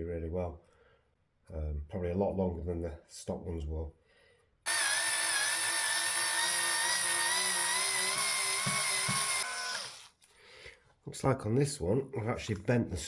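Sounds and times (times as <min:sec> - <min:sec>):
electric screwdriver whine: 0:04.7 - 0:10.2.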